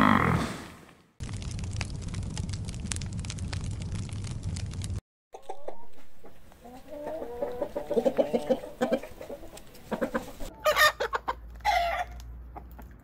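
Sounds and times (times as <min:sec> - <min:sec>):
chickens clucking: 0:05.4 - 0:12.9.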